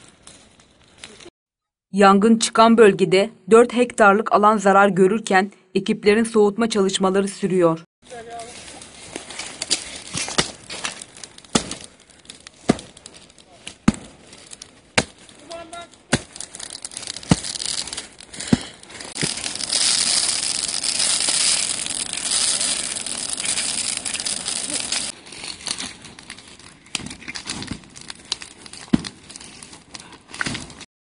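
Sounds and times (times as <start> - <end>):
undergrowth fire crackling: 0.0 - 1.3, 8.0 - 30.9.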